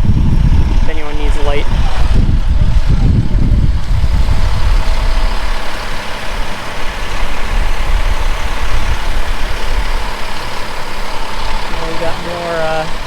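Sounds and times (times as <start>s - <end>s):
wind gusting over microphone: 0.0s - 13.0s.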